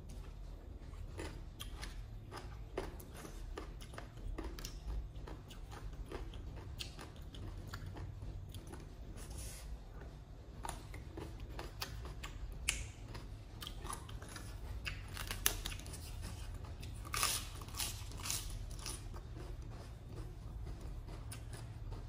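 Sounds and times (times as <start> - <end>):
low steady hum: 0.0 - 22.0
crisp crunchy chewing: 10.6 - 22.0.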